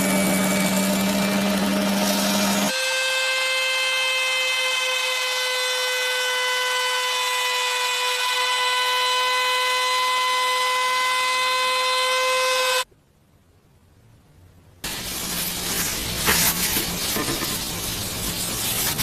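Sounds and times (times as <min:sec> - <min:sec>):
power tool whining: 0:00.0 - 0:12.8.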